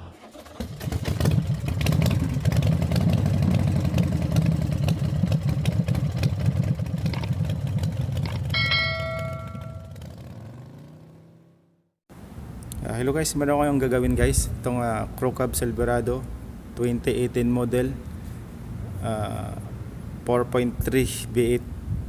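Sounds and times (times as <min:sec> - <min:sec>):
car engine cranking on starter: 0:00.0 - 0:02.6
short chime: 0:08.6 - 0:10.0.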